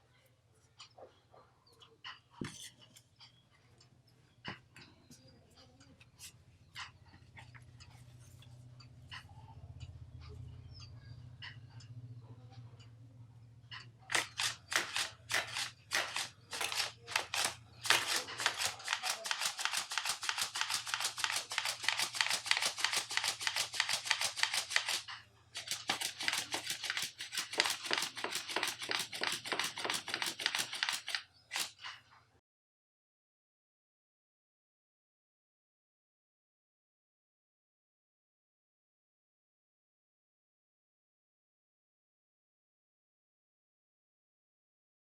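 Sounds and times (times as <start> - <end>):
paper wings flapping: 14.1 - 31.8.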